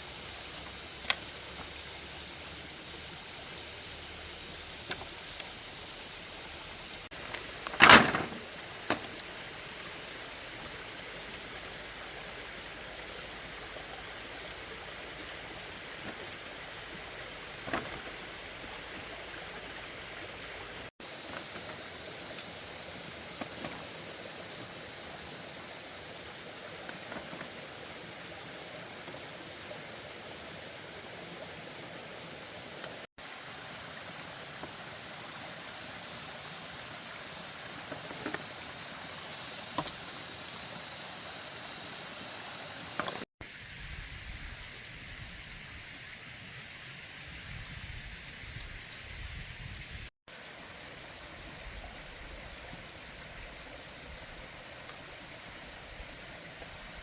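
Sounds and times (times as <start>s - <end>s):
outdoor background hiss: 0.0s - 57.0s.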